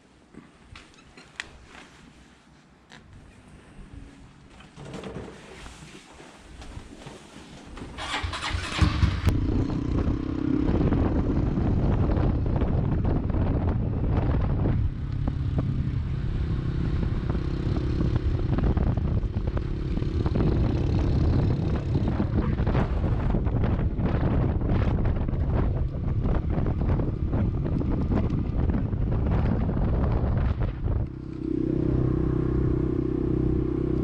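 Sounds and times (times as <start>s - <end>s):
motorcycle engine starting and running: 7.9s - 34.0s.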